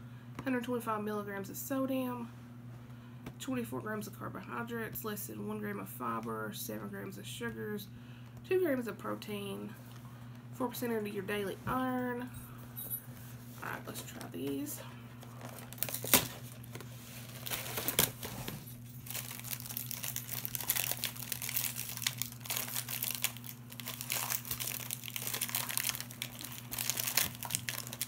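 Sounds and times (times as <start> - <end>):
packaging crinkling and rustling: 15.1 - 28.0
packaging snapping: 15.4 - 16.8, 17.4 - 18.3, 19.0 - 28.0.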